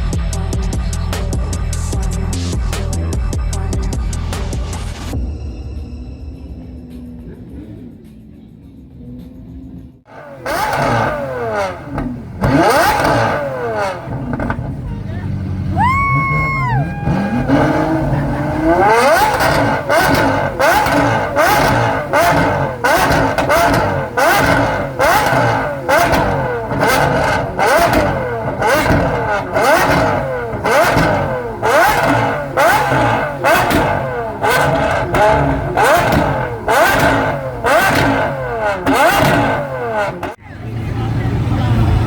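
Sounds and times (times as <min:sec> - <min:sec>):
car engine revving: 0:00.0 - 0:42.0
exhaust pops and crackles: 0:10.5 - 0:15.0, 0:17.2 - 0:40.4.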